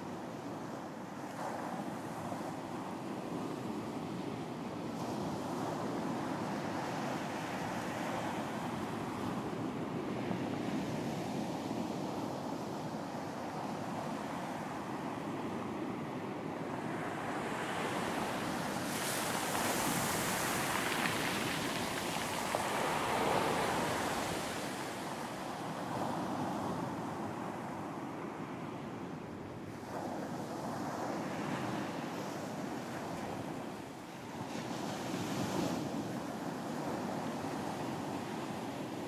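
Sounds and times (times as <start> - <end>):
ocean waves breaking: 16.8 - 27.0.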